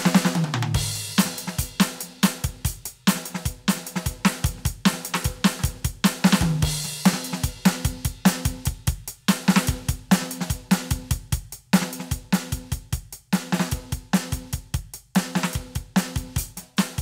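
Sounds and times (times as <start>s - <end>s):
tom drum fill: 0.0s - 8.9s
electronic drum kit groove: 0.0s - 17.0s.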